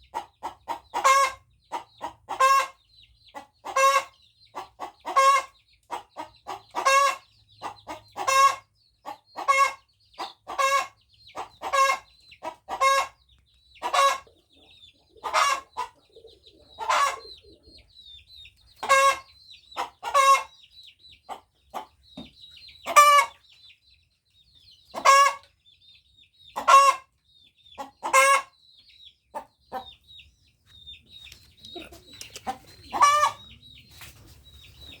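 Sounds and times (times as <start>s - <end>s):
hen calling: 13.8s - 17.8s, 31.6s - 33.8s.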